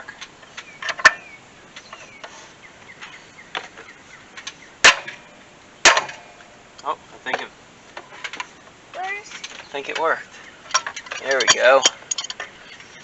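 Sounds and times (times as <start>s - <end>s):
metal tools knocking and clicking: 10.7s - 12.5s.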